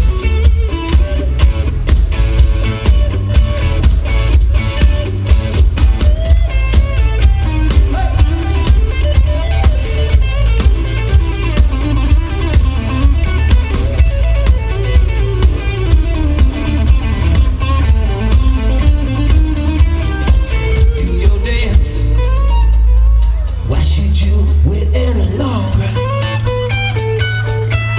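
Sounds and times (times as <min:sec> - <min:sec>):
electric guitar lead: 0:00.0 - 0:23.7, 0:25.8 - 0:27.9
bass guitar: 0:00.0 - 0:27.9
drums: 0:00.0 - 0:27.9.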